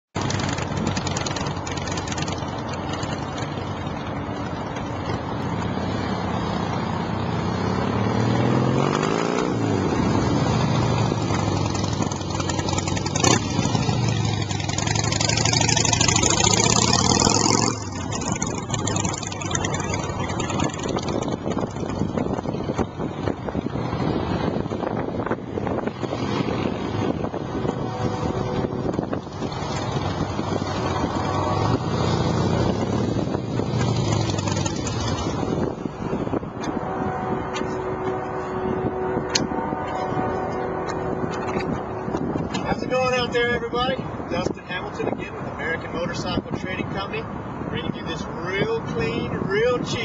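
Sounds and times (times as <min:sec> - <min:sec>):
motorcycle engine idling and revving: 0:00.0 - 0:50.0.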